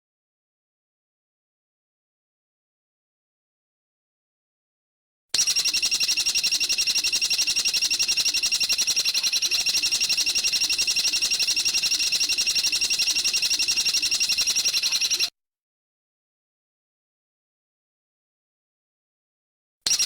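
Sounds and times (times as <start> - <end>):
small bird trilling: 5.4 - 15.3.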